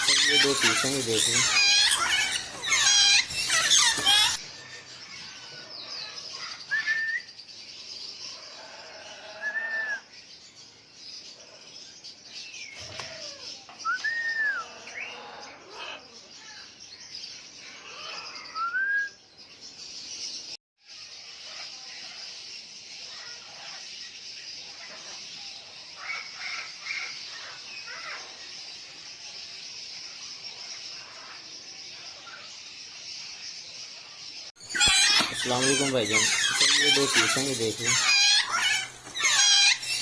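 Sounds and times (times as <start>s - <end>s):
high chirping: 0.0s - 4.4s, 34.6s - 40.0s
parrots calling: 0.0s - 4.5s, 34.6s - 40.0s.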